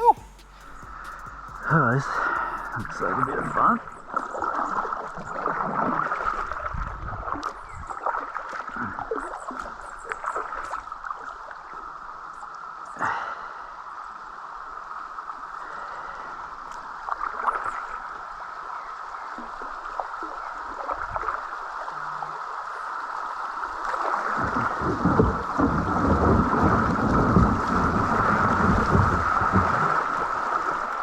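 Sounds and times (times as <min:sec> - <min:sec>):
rushing river water: 0:00.0 - 0:31.0
water splashing against kayak: 0:00.0 - 0:31.0.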